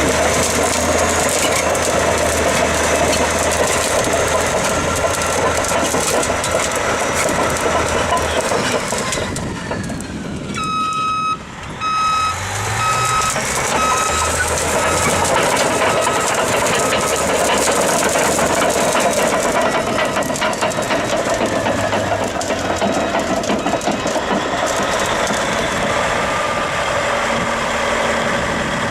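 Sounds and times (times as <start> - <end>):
diesel engine running: 0.0 - 28.9
reversing alarm beeping: 10.6 - 17.4.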